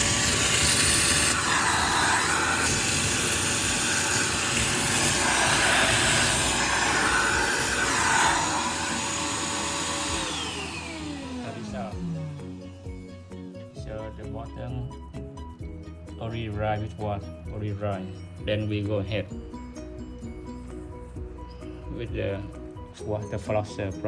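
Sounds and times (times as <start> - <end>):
wet vacuum running: 0.0 - 13.0.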